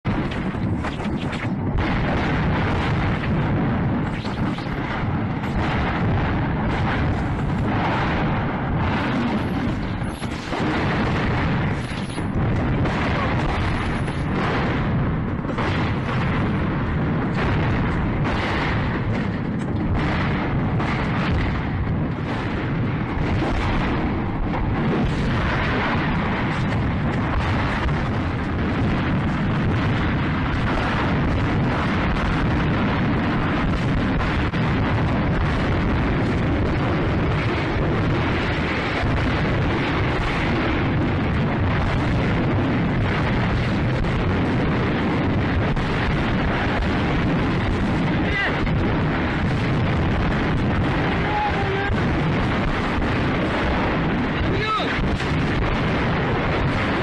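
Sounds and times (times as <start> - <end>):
ammunition crackling and popping: 0.0 - 22.5
low rumble of fire: 0.0 - 57.0.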